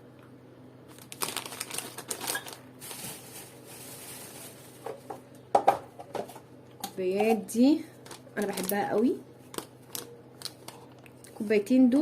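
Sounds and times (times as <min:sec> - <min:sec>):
packaging rustling: 0:00.9 - 0:05.1, 0:08.0 - 0:08.9, 0:09.5 - 0:10.9.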